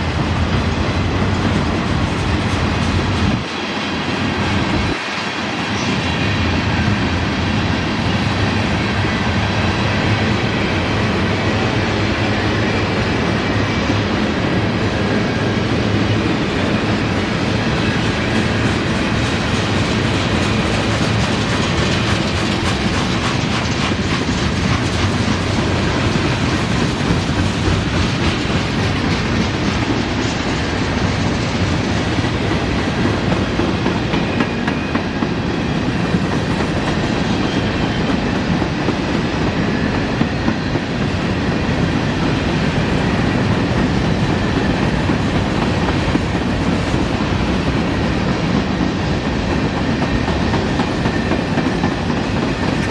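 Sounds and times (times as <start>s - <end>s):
train cars rolling past: 0.0s - 52.9s
steel wheels clicking over rail joints: 18.0s - 35.3s.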